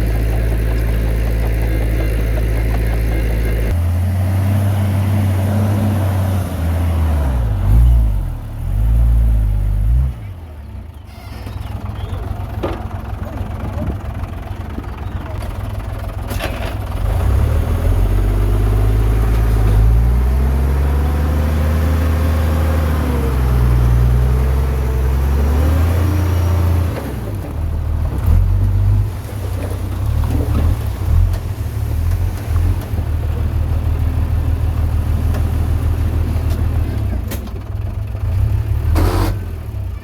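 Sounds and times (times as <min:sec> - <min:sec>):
heavy diesel engine revving: 0:00.0 - 0:10.4, 0:16.9 - 0:29.2, 0:38.0 - 0:40.0.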